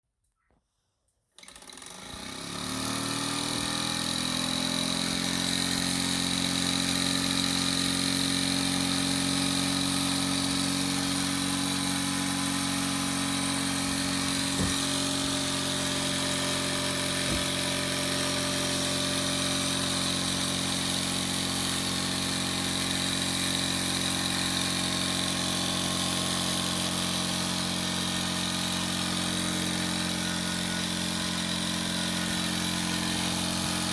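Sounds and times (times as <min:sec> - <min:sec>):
steam hissing: 0:07.6 - 0:25.4
steam engine beat: 0:08.1 - 0:23.5.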